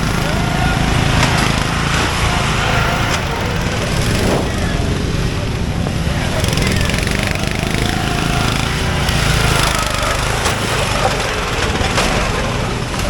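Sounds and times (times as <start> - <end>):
lawn mower engine running hard: 0.0 - 13.0.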